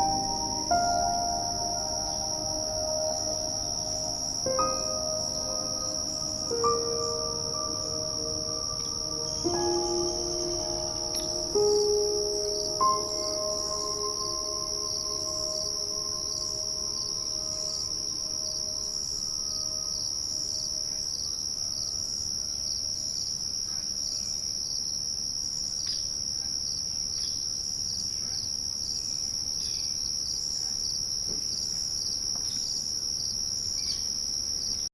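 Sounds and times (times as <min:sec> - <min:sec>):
pitched tones: 0:00.0 - 0:21.0
faint chirps: 0:00.0 - 0:24.4
insect chorus trilling: 0:00.0 - 0:34.8.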